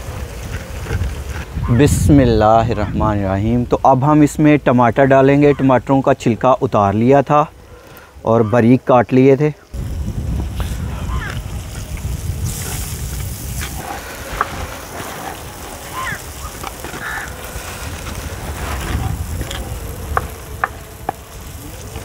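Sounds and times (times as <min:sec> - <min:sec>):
wind rumble on microphone: 0:00.0 - 0:05.9, 0:09.7 - 0:22.0
food sizzling in oil: 0:09.8 - 0:22.0.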